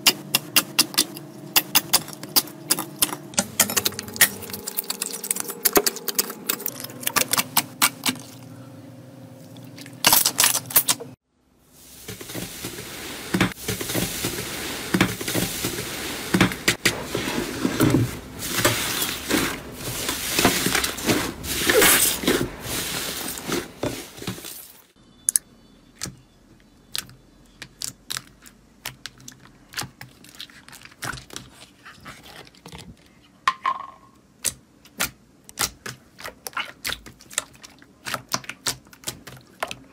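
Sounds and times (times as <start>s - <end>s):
slime clicking and squelching: 34.4s - 39.9s.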